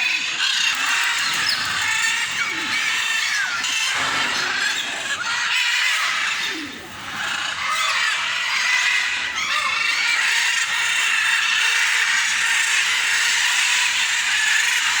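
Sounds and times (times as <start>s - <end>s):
small birds chirping and chattering: 0.0s - 15.0s.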